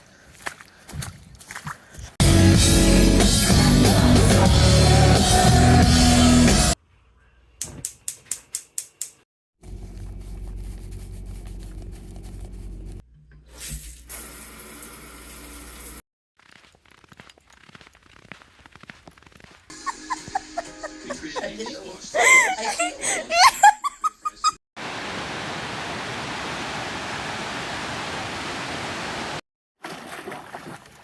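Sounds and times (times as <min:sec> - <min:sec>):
loud rock music with drums: 0:02.2 - 0:06.8.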